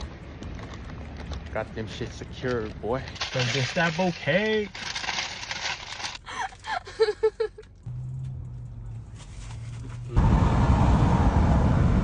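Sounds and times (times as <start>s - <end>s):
low engine hum: 7.7s - 12.0s.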